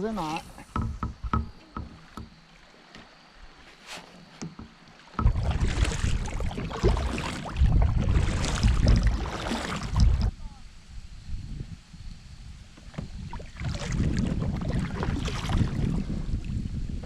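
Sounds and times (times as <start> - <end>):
rushing river water: 0.0 - 10.4
wind: 0.0 - 17.0
light knocks on kayak: 0.7 - 3.1, 4.4 - 5.4.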